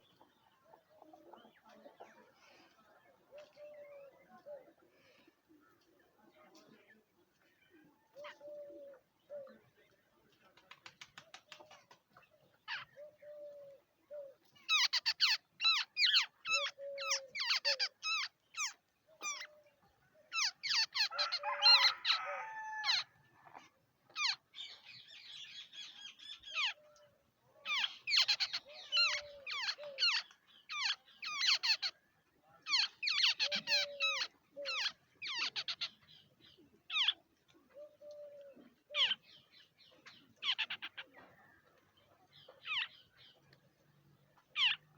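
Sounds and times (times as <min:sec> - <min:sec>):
babblers harsh chattering: 0:14.7 - 0:19.5, 0:27.7 - 0:31.9, 0:32.7 - 0:35.9.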